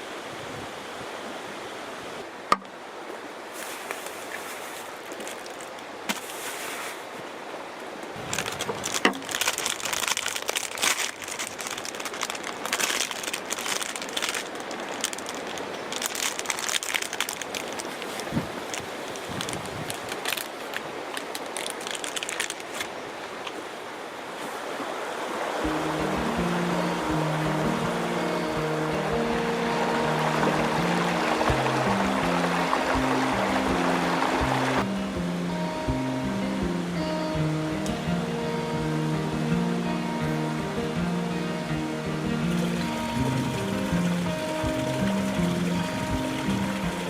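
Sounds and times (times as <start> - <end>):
waves washing: 0.0 - 47.0
crinkling handling noise: 3.5 - 7.2, 8.0 - 23.0.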